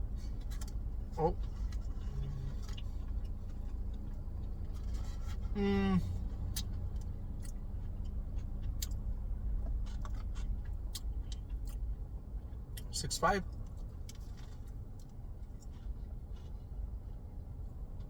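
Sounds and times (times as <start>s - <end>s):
low rumble: 0.0s - 10.2s
person humming: 2.0s - 2.6s, 5.5s - 6.2s.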